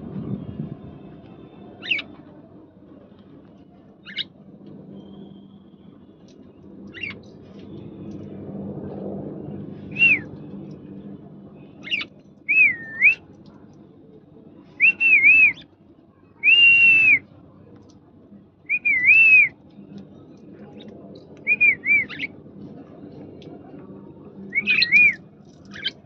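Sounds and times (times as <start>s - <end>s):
parrot whistling: 24.5s - 25.2s.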